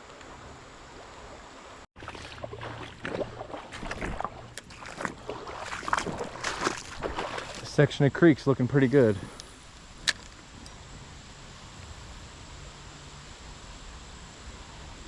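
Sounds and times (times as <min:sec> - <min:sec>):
creek water running: 0:00.0 - 0:14.9
splashing steps in shallow water: 0:02.0 - 0:09.1.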